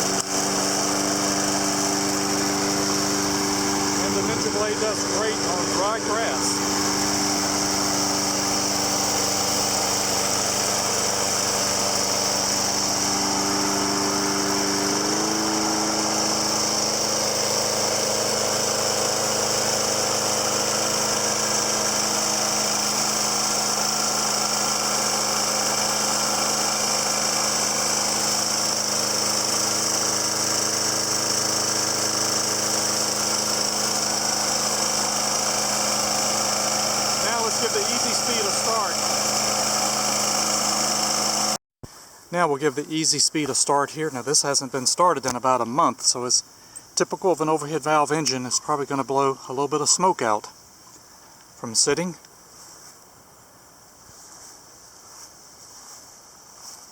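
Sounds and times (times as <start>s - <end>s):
lawn mower engine running: 0.0s - 41.6s.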